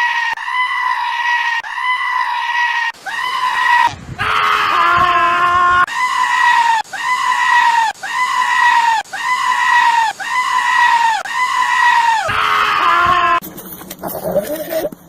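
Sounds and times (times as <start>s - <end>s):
goat screaming: 0.0s - 13.4s
goat bleating: 14.0s - 15.0s.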